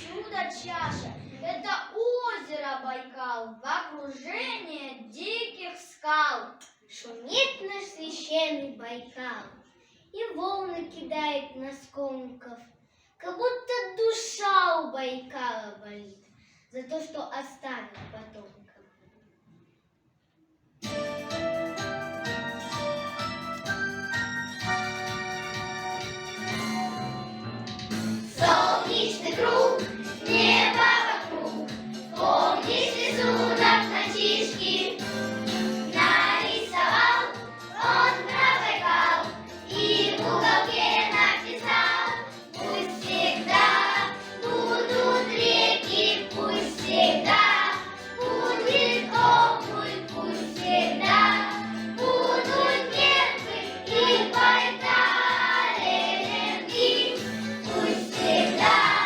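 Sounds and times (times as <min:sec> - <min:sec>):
instrumental accompaniment: 0:20.8 - 0:59.0
children's choir singing: 0:28.2 - 0:59.0.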